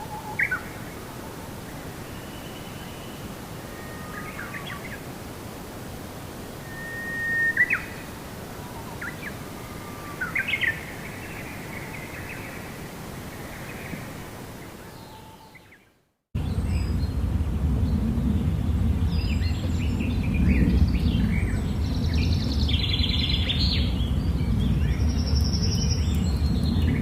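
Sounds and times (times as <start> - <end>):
small birds chirping: 6.7 - 27.0
low background rush: 16.4 - 27.0.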